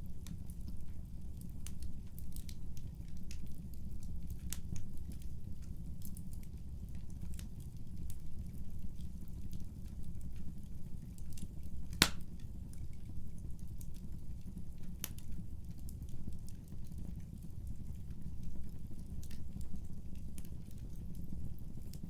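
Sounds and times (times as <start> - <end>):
fire crackles and pops: 0.1 - 22.0
wood fire rumble: 0.1 - 22.0.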